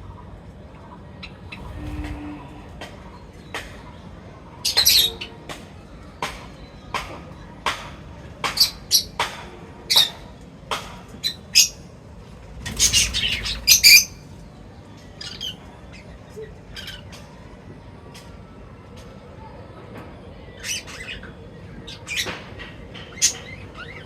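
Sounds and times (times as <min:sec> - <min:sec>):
birds chirping and squawking: 0:01.1 - 0:05.4, 0:12.4 - 0:14.3.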